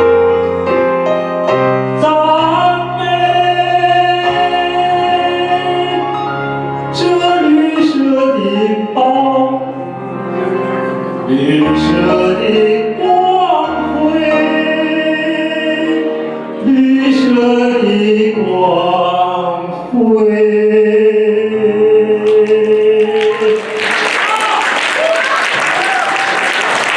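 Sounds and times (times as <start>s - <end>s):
backing music: 0.0s - 17.6s
operatic wordless singing: 2.0s - 23.9s.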